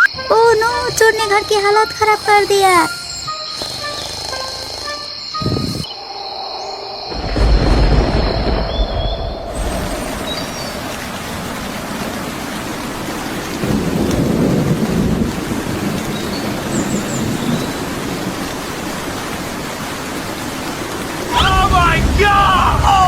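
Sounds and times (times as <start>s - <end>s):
heavy rain: 0.0s - 23.0s
thunder rolling: 5.5s - 12.6s, 13.6s - 18.3s, 21.0s - 23.0s.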